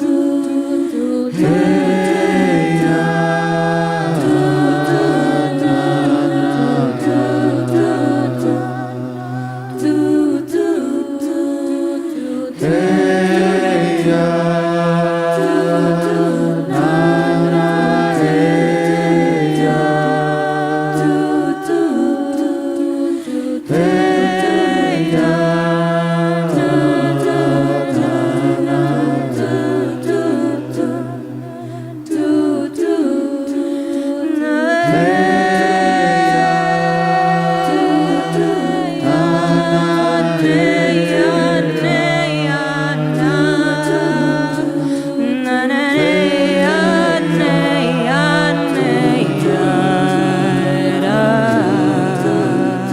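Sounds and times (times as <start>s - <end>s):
vocal group singing in harmony: 0.0s - 52.9s.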